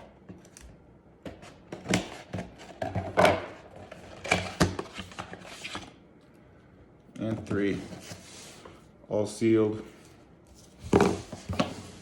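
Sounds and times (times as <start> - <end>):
cardboard boxes rustling and scraping: 10.5 - 12.0.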